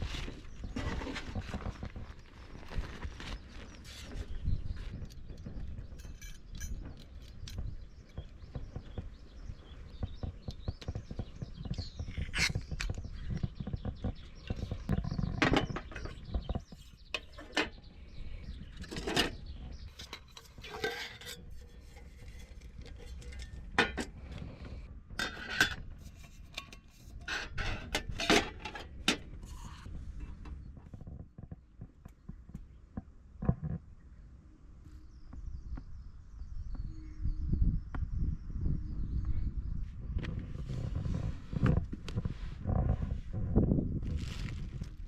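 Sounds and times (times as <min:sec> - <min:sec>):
dishes and utensils clinking: 0:19.9 - 0:24.1.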